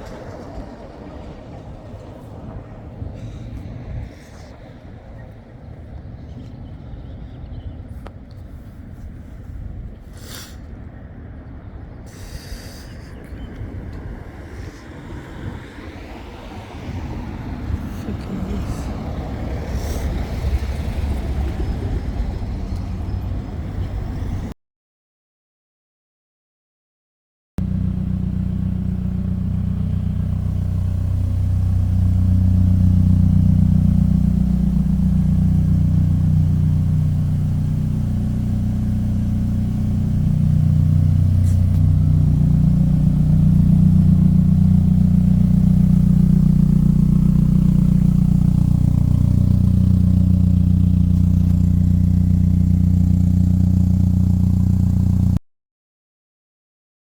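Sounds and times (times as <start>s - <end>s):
car engine running: 27.6s - 55.4s.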